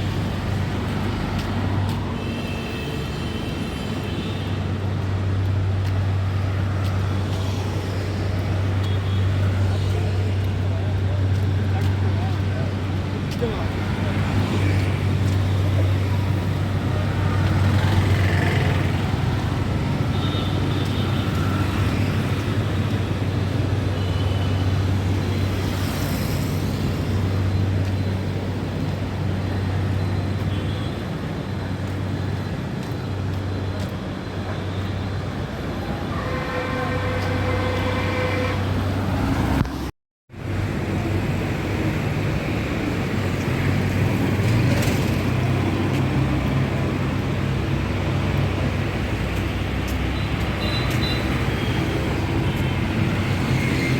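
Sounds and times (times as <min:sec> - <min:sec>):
busy road traffic: 0:00.0 - 0:53.9
vehicle horn: 0:36.1 - 0:38.8.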